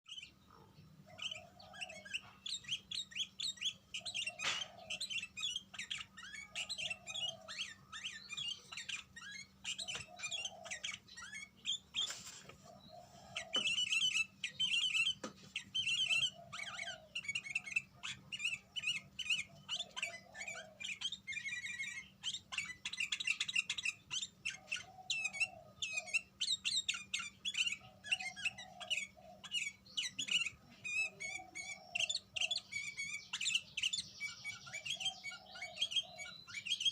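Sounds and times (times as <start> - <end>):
bird twittering: 0.0 - 36.9.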